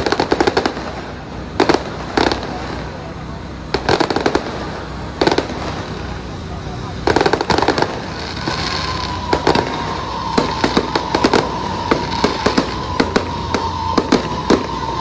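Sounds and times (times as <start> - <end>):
fireworks bangs and crackles: 0.0 - 15.0
steady whistling tone: 2.4 - 15.0.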